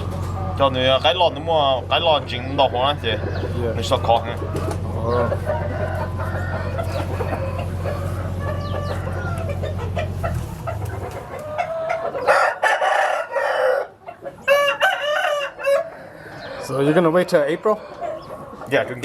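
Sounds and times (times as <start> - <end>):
chickens clucking: 0.0 - 19.0
rooster crowing: 5.1 - 10.0, 11.6 - 18.4.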